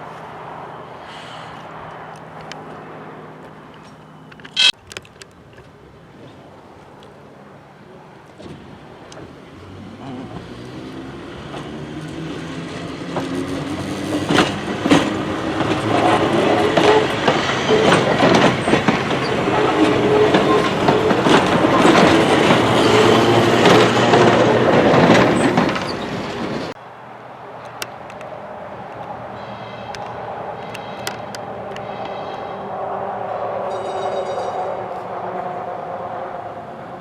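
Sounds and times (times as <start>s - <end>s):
rail car passing: 10.5s - 37.0s
wheels clicking over rail joints: 13.2s - 26.8s.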